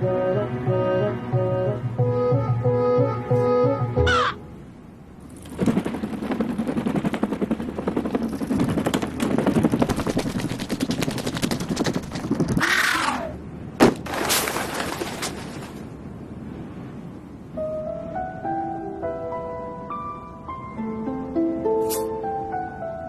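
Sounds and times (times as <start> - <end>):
fast rattling clatter: 5.3 - 12.8.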